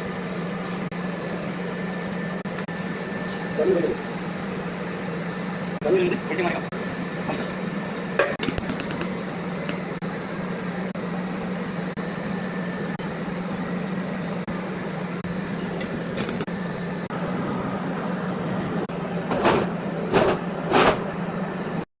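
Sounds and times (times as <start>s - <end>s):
machine hum: 0.0s - 21.9s
metal-working hiss: 7.2s - 17.1s.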